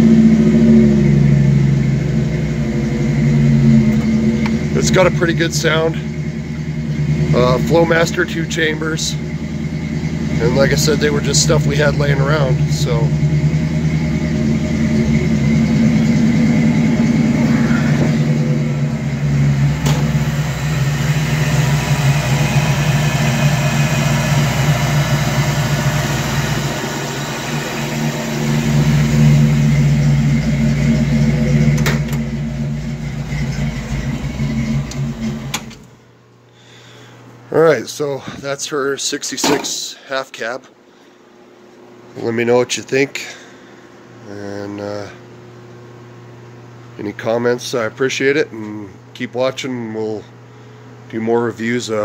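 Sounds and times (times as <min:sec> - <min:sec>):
car engine running: 0:00.0 - 0:36.2.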